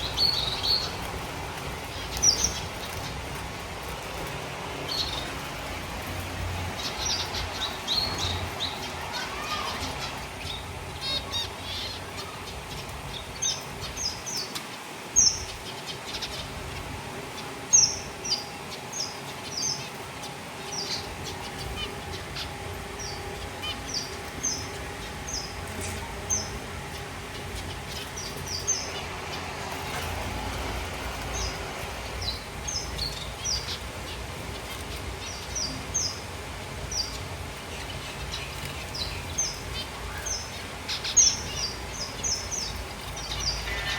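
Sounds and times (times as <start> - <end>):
zebra finches chirping: 0.0 - 43.9.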